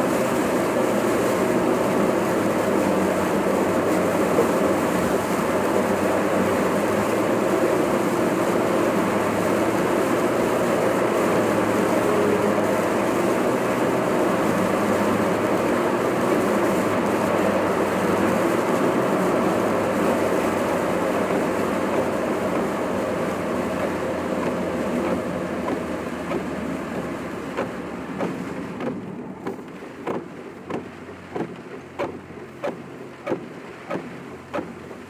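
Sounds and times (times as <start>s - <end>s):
road and engine noise inside car: 0.0s - 35.0s.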